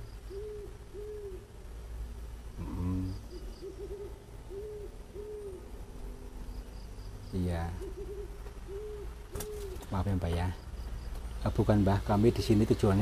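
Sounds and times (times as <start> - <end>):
bird hooting: 0.0 - 1.6, 2.6 - 5.9, 6.9 - 9.9
murmured voice: 2.6 - 3.3.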